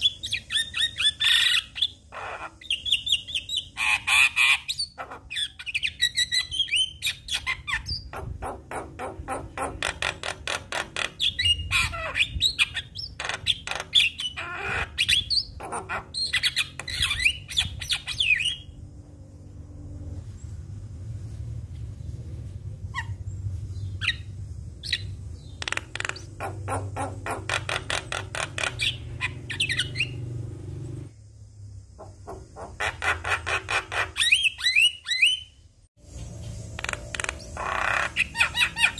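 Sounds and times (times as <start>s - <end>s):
bird chattering and whistling: 0.0s - 18.8s, 24.0s - 30.3s, 32.0s - 35.5s, 36.8s - 38.9s.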